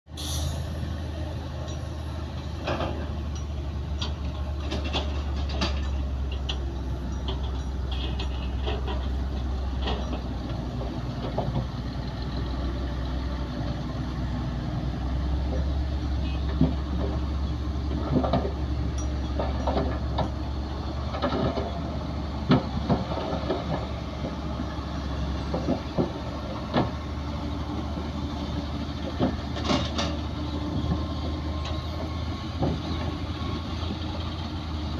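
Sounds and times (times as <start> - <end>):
heavy diesel machinery humming: 0.1 - 34.9
metallic clanks and knocks: 2.6 - 12.6, 15.4 - 24.7, 25.4 - 27.1, 29.0 - 33.2.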